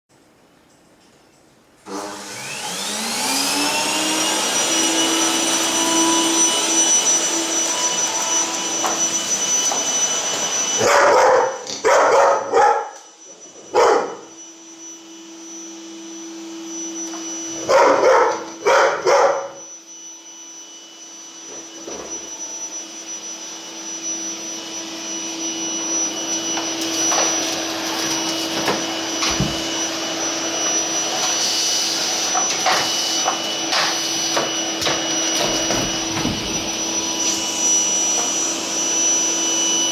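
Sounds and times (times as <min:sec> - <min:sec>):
vacuum cleaner whine: 0:01.8 - 0:39.9
dog barking: 0:10.8 - 0:13.1, 0:13.7 - 0:14.3, 0:17.6 - 0:19.6.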